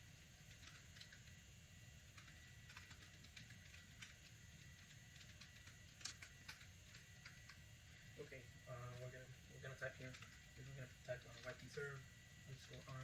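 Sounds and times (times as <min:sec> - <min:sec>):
low steady hum: 0:00.0 - 0:13.0
keyboard typing: 0:00.4 - 0:01.4, 0:02.1 - 0:07.6, 0:08.9 - 0:12.0.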